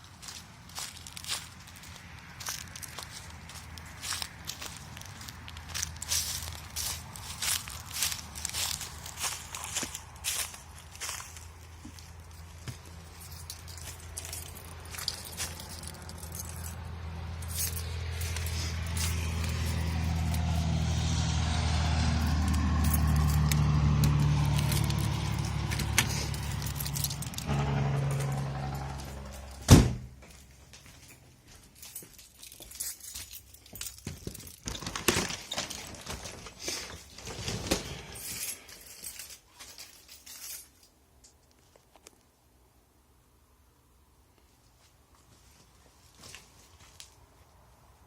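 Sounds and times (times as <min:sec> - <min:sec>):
vehicle engine running: 0:05.6 - 0:30.4
light clicks and jingling: 0:11.9 - 0:20.5, 0:22.5 - 0:27.4, 0:30.8 - 0:34.6, 0:38.2 - 0:42.1.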